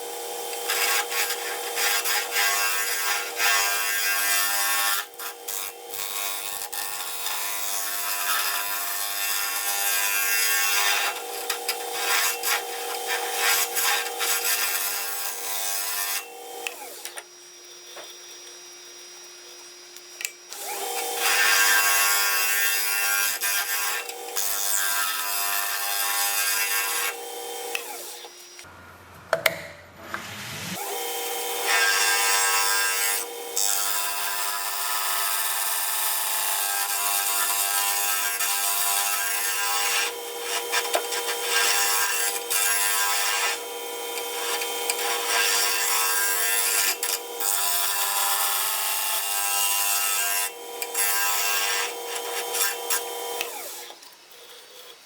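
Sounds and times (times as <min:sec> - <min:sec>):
wood lathe humming: 0:00.0 - 0:28.7, 0:30.7 - 0:55.0.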